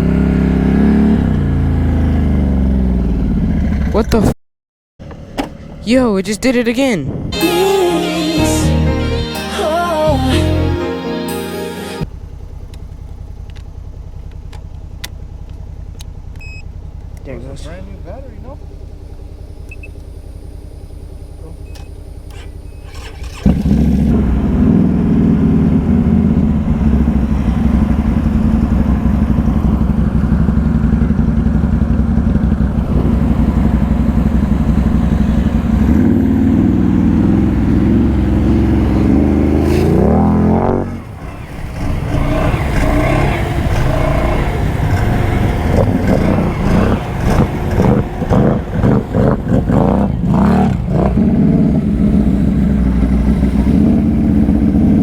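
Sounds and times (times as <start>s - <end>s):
atv engine revving: 0.0s - 4.4s, 12.0s - 55.0s.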